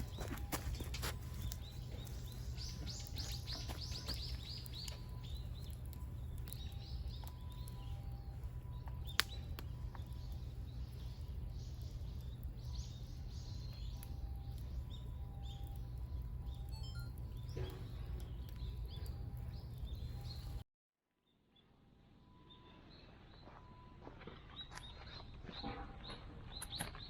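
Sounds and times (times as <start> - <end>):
low background rumble: 0.0 - 20.6
songbirds chirping: 0.0 - 20.6, 21.6 - 27.0.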